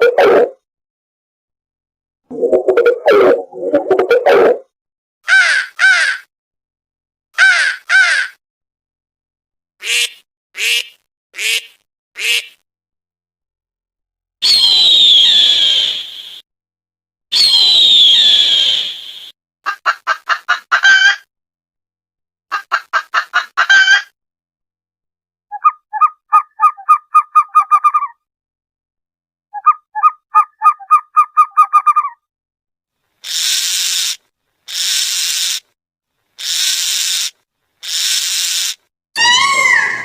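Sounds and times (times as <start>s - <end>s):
fast pulsed gobbling calls: 25.6s - 28.2s, 29.6s - 32.2s, 33.2s - 35.6s, 36.4s - 38.8s
short hissing bursts: 33.2s - 35.7s, 36.4s - 38.8s.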